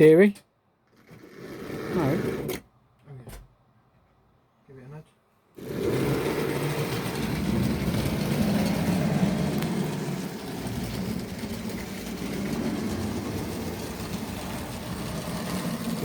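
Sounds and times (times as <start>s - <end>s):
model train motor humming: 5.6s - 16.0s
wheels rattling on rails: 5.6s - 16.0s.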